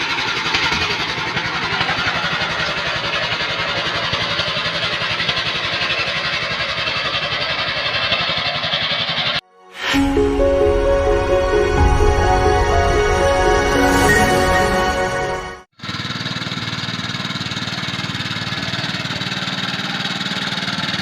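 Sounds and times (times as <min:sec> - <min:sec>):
tractor engine running: 0:00.0 - 0:09.4, 0:15.4 - 0:21.0.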